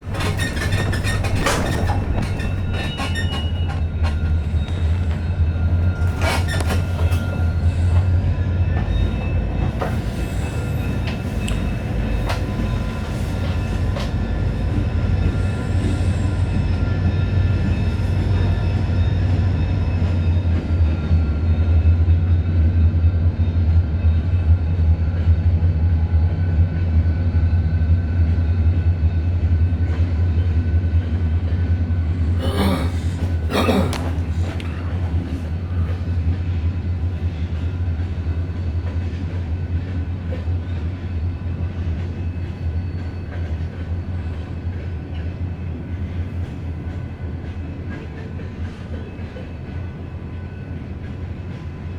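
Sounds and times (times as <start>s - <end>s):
wheels clicking over rail joints: 0.0s - 8.1s
freight train cars rolling: 0.0s - 22.0s, 28.0s - 51.9s.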